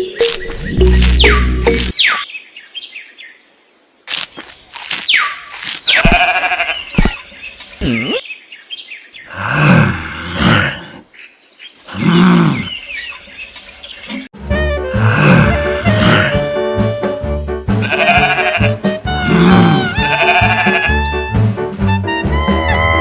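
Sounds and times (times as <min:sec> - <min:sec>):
farm animal bleating calls: 0:06.0 - 0:07.2, 0:17.8 - 0:21.1.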